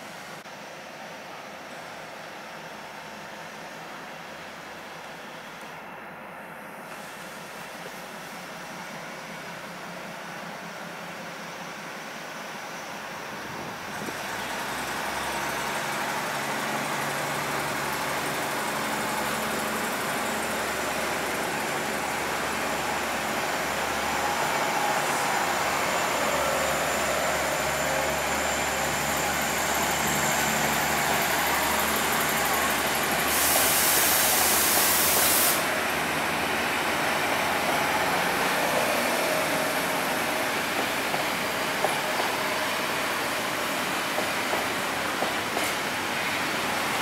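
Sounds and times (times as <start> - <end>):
train rumbling and rattling: 6.9 - 47.0
sharp hiss: 19.2 - 36.3.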